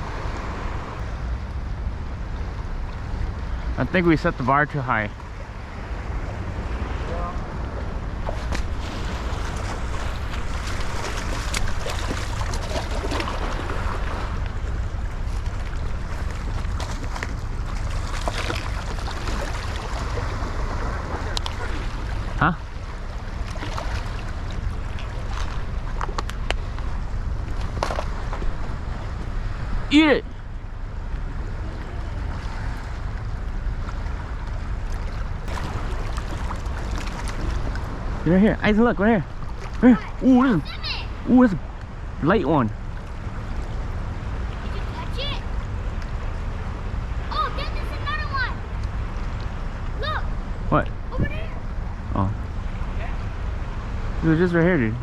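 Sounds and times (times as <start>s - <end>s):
river water rushing: 0.0s - 54.6s
wind buffeting microphone: 5.7s - 22.3s.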